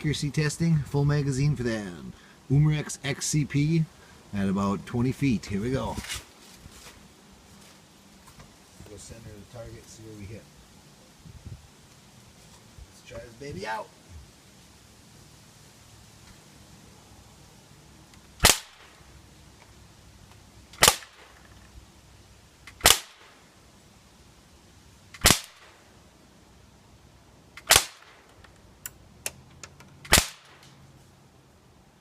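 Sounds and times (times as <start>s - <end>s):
air pistol shots popping: 18.4s - 18.9s, 20.8s - 21.4s, 22.7s - 23.4s, 25.2s - 25.8s, 27.6s - 28.3s, 30.0s - 30.7s.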